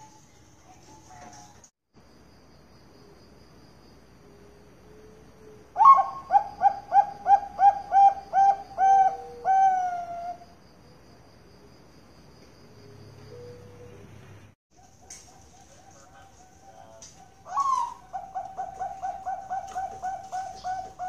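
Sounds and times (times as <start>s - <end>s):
insects chirping: 1.9s - 21.0s
dove cooing: 4.9s - 10.4s, 14.8s - 21.0s.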